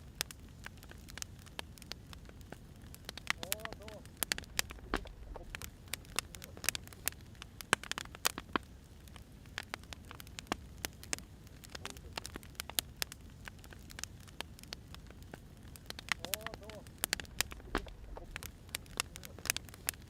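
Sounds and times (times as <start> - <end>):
firewood crackling and popping: 0.0 - 20.0
low steady hiss: 0.0 - 20.0.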